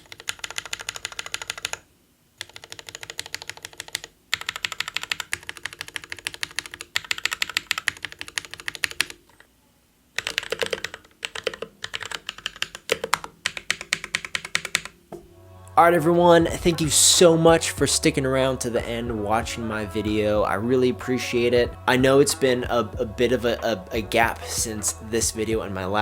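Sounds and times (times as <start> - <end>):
mechanical keyboard typing: 0.0 - 1.8, 2.4 - 9.2, 10.2 - 15.0.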